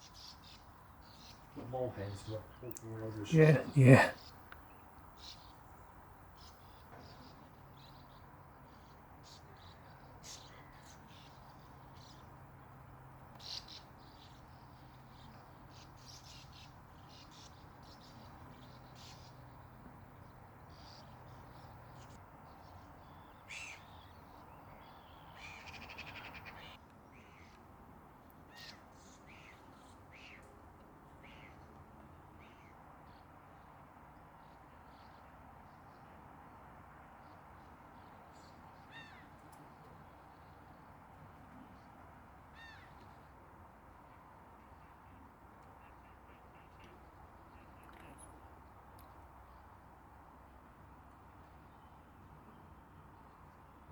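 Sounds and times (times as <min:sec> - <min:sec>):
small birds chirping: 0:00.0 - 0:27.6.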